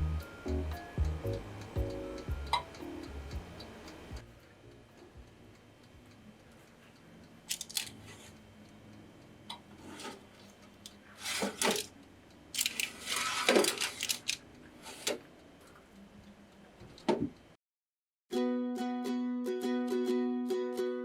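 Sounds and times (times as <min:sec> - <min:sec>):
clicks and clinks from handling: 0:07.5 - 0:08.0
rustling scrapes: 0:11.1 - 0:11.8, 0:12.8 - 0:14.2.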